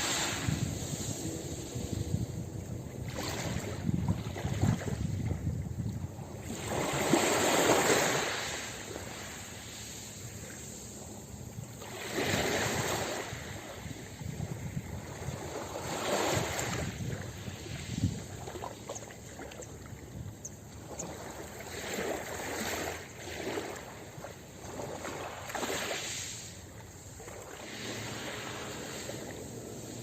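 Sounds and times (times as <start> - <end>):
steady low rumble: 0.0 - 6.5
ocean waves washing onto beach: 0.0 - 19.9, 20.9 - 30.0.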